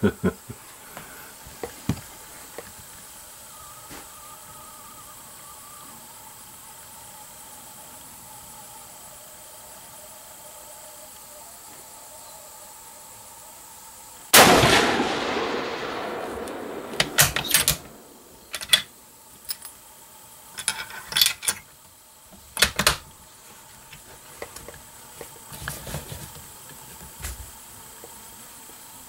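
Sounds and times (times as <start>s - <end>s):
rifle shot echoing: 14.3s - 18.6s
rifle action clicking: 16.3s - 18.9s.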